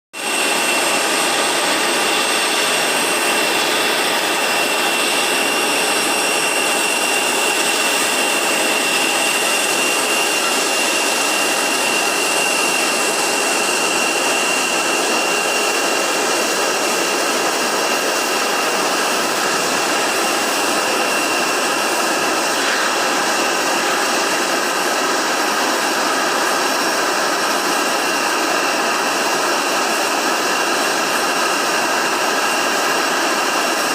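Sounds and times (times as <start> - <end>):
high steady whine: 0.2 - 33.9
jet engines idling: 0.2 - 33.9.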